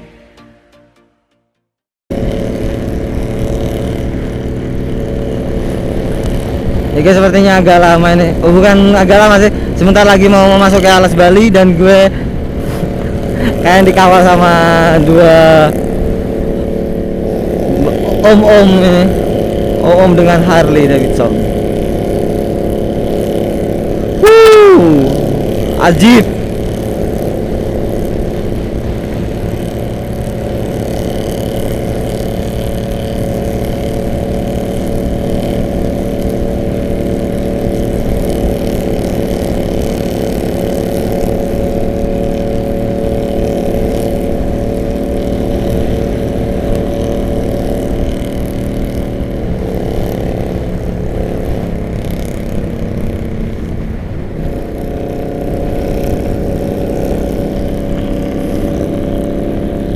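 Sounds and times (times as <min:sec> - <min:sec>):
motorcycles cruising: 0:02.1 - 0:59.9.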